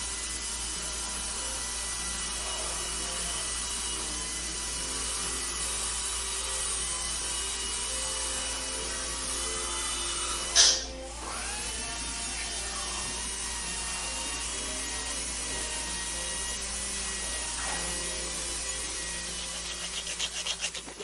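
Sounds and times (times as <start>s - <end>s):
dental drill whining: 0.0s - 21.0s.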